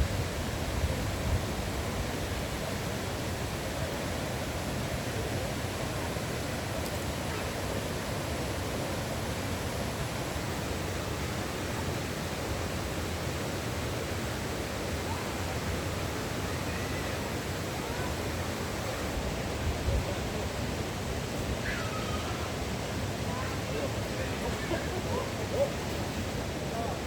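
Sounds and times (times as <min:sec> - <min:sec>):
waterfall rushing: 0:00.0 - 0:27.0
faint bird calls: 0:21.6 - 0:22.6.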